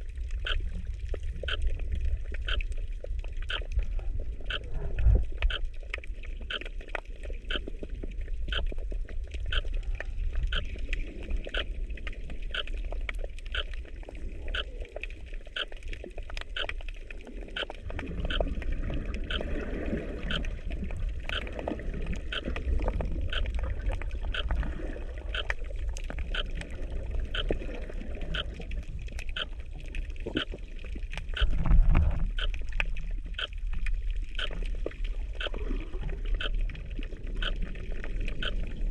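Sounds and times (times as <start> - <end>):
underwater rumble of moving water: 0.0 - 38.9
regular ticking: 16.5 - 16.8
low surge of water: 17.1 - 38.9.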